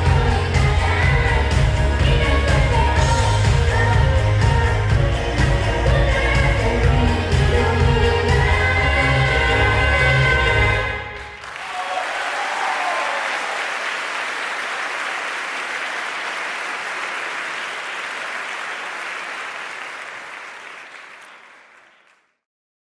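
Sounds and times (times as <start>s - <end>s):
song with bass-heavy backing: 0.0s - 11.3s
audience applause: 11.2s - 22.3s.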